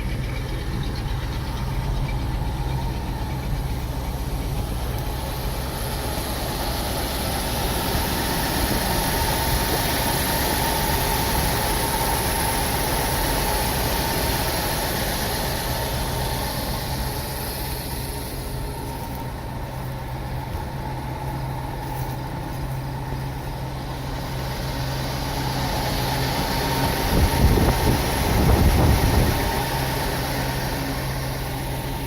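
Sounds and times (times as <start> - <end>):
truck engine idling: 0.0 - 32.0.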